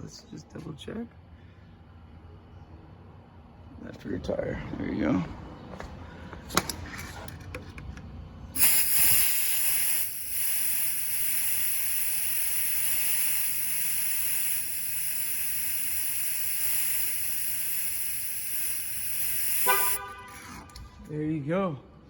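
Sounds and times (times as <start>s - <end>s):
air hissing out of tire valve: 8.6s - 20.4s.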